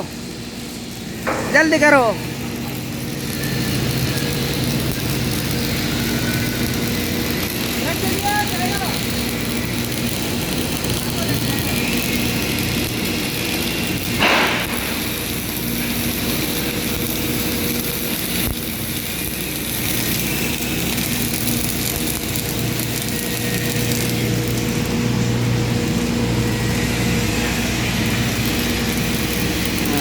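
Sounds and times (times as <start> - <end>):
shop machinery droning: 0.0 - 30.0.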